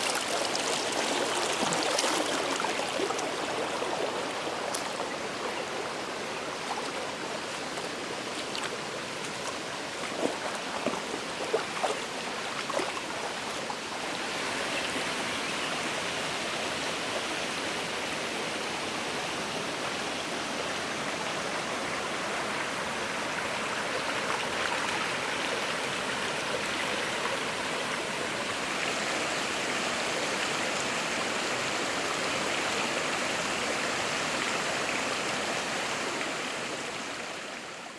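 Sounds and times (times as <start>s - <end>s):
water splashes: 0.0s - 14.9s
water rushing: 0.0s - 37.9s.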